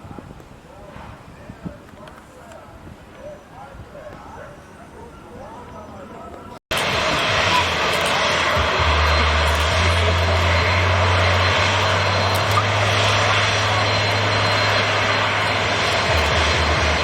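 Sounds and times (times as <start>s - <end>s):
jet engines at takeoff: 6.7s - 17.0s.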